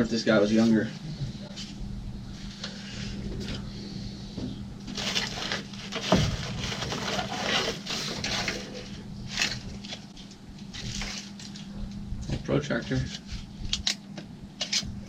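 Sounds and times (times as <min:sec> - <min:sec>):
low hum: 0:00.0 - 0:15.0
paper rustling: 0:04.9 - 0:11.7.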